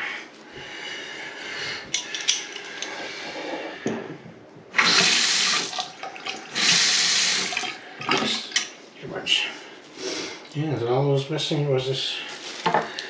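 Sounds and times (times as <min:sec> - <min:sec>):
water rushing into sink: 0:04.7 - 0:08.6.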